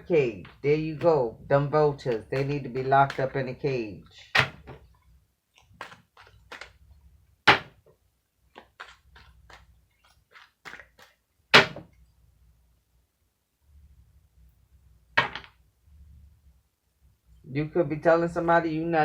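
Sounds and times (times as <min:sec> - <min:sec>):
cards clicking and tapping: 0:01.9 - 0:03.6, 0:05.6 - 0:06.8, 0:08.5 - 0:11.9
cards snapping: 0:08.6 - 0:11.8.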